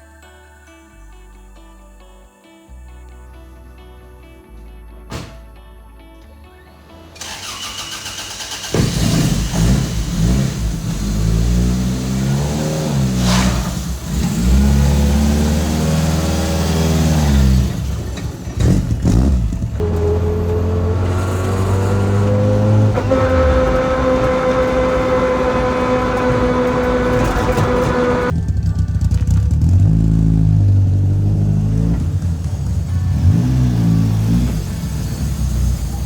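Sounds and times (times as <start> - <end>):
car engine starting and revving: 7.2 - 36.0
rising whine: 19.0 - 28.4.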